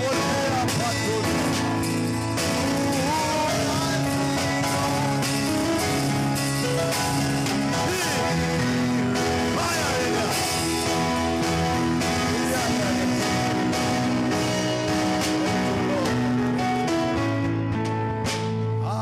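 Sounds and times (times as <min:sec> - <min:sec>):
person singing: 0:00.0 - 0:17.3, 0:18.6 - 0:19.0
worship band music: 0:00.0 - 0:19.0.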